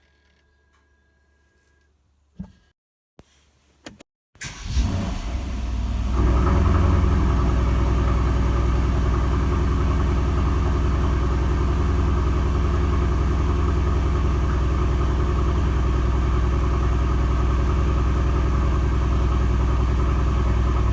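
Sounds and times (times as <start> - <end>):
car engine idling deep rumble: 5.1 - 20.9.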